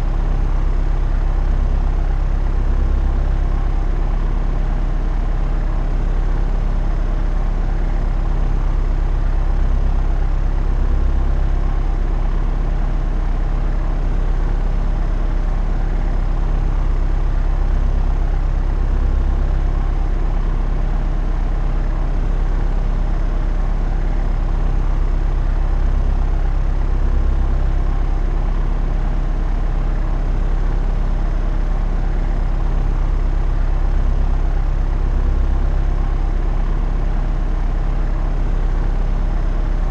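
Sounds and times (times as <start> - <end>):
propeller aeroplane drone: 0.0 - 39.9.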